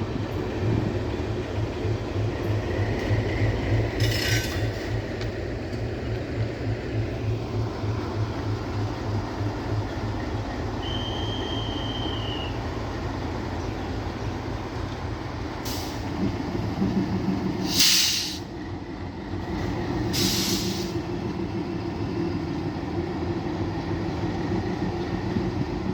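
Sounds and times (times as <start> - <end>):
train wheels rumbling on track: 0.0 - 25.9
high wheel squeal: 10.7 - 12.6.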